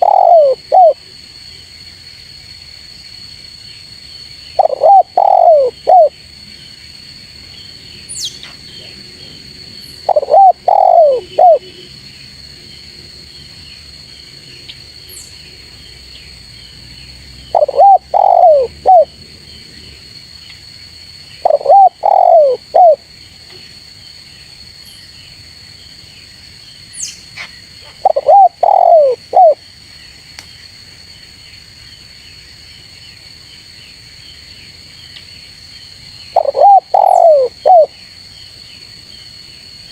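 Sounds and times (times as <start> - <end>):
dove cooing: 0.0 - 1.0, 4.6 - 6.1, 10.0 - 11.9, 17.5 - 19.1, 21.4 - 23.0, 28.0 - 29.6, 36.4 - 37.9.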